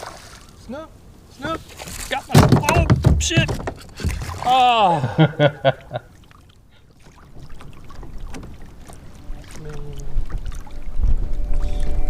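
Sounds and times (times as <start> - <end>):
wind and water rushing: 0.0 - 12.0
knocks on a kayak: 2.3 - 4.4.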